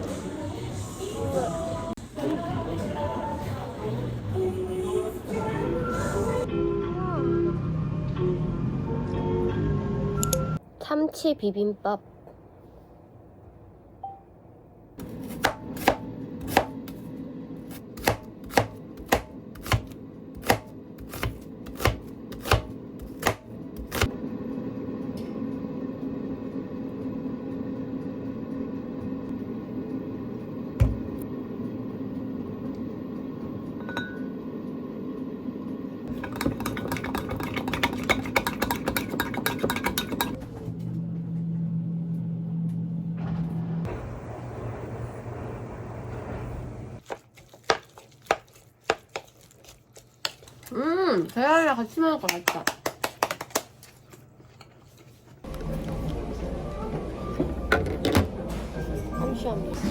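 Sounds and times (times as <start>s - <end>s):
knife chopping on cutting board: 15.0s - 17.0s, 17.7s - 24.1s.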